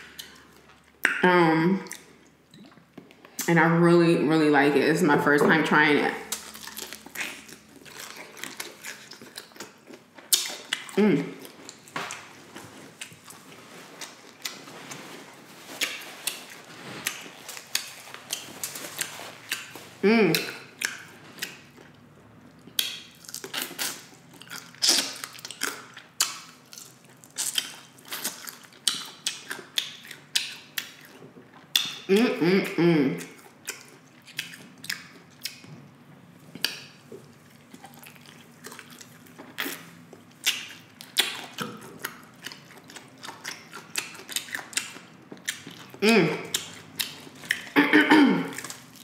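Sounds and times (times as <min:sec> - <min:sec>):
person's voice: 0:03.4 - 0:06.3, 0:46.0 - 0:46.5
crunching fried chicken: 0:06.3 - 0:14.7, 0:15.4 - 0:32.0, 0:36.6 - 0:47.8.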